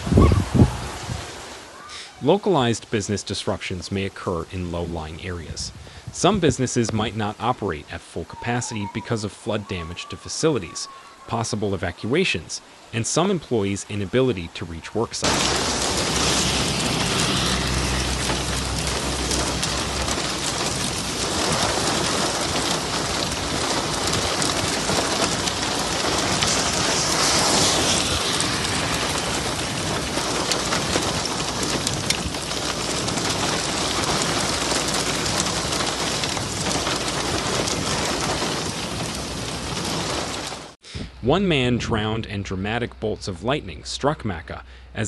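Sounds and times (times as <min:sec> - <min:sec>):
heavy rain pouring: 0:00.0 - 0:40.8
low rumble: 0:15.3 - 0:21.8, 0:24.4 - 0:31.9.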